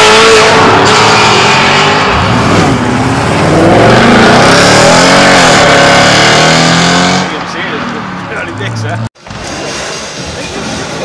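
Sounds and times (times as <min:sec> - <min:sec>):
supercar engine revving: 0:00.0 - 0:07.4.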